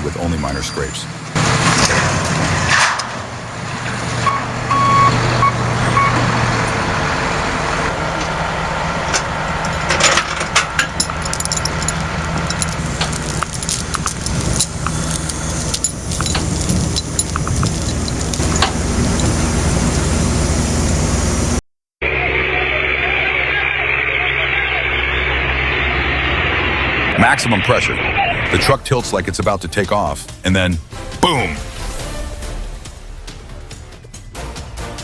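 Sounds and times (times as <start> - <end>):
heavy truck engine running: 0.0 - 31.4
knocks and clatter: 9.1 - 19.6.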